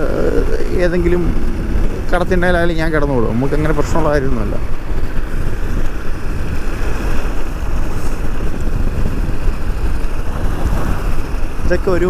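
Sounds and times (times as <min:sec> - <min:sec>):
motorcycle engine running: 0:00.0 - 0:12.0
wind on microphone: 0:00.0 - 0:12.0.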